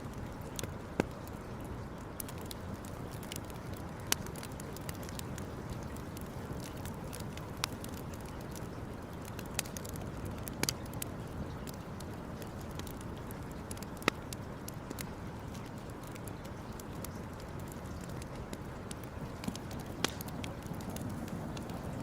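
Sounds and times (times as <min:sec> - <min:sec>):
wood crackling in campfire: 0:00.0 - 0:22.0
sharp fire pops: 0:18.5 - 0:22.0
low fire rush: 0:18.9 - 0:22.0.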